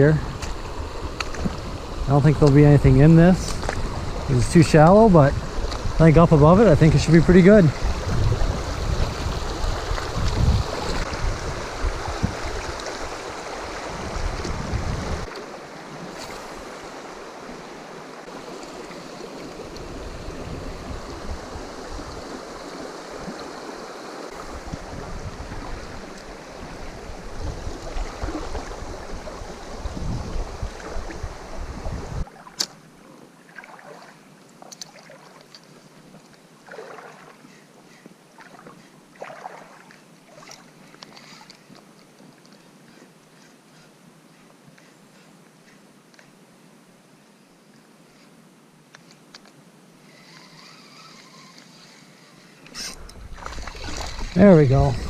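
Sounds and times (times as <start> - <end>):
wind gusts on microphone: 0.0 - 15.3, 15.9 - 32.3, 52.8 - 55.0
water running over river riffle: 0.0 - 32.9, 33.5 - 37.5, 38.3 - 42.2, 52.7 - 55.0.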